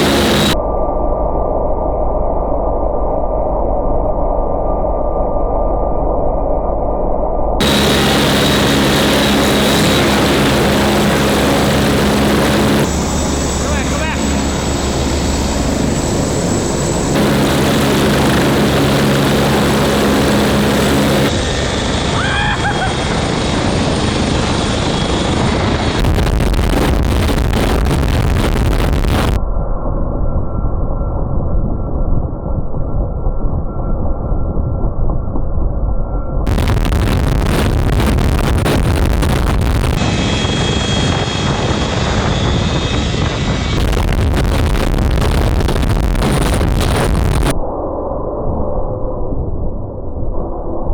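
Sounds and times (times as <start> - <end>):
helicopter engine and rotor: 0.0 - 0.6, 7.6 - 29.4, 36.5 - 47.6
steady high whine: 0.0 - 1.0, 7.6 - 29.5, 36.5 - 49.2.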